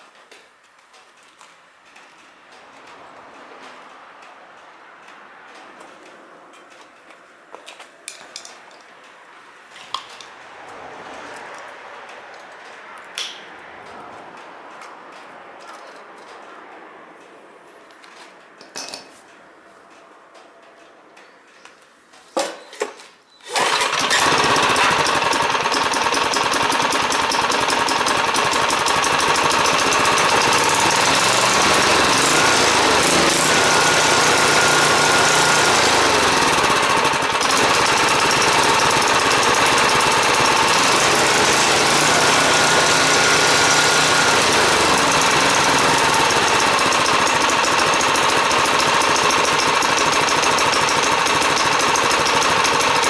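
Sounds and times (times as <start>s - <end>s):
brush cutter engine running: 23.5s - 53.0s.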